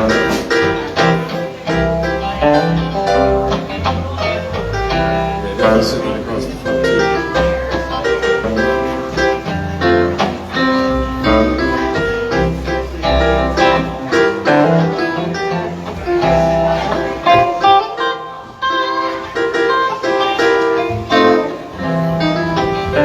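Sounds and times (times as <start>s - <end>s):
sustained bass line: 0.0s - 17.3s
plucked guitar notes: 0.0s - 23.0s.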